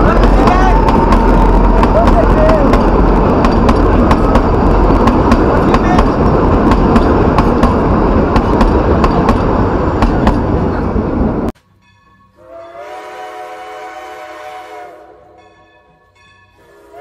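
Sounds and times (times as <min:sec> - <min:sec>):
wheels clicking over rail joints: 0:00.0 - 0:10.9
train coaches rumbling past: 0:00.0 - 0:17.0
horn-like chord: 0:12.4 - 0:15.4.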